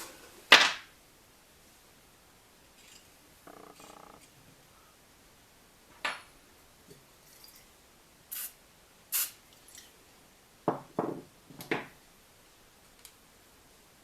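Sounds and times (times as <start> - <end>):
short hissing bursts: 8.3 - 9.4.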